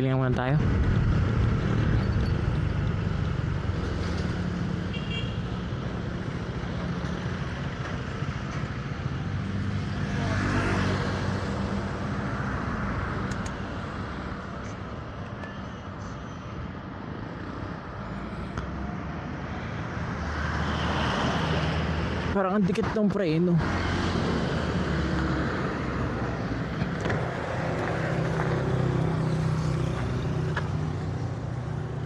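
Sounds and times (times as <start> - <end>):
road traffic noise: 0.0 - 32.0.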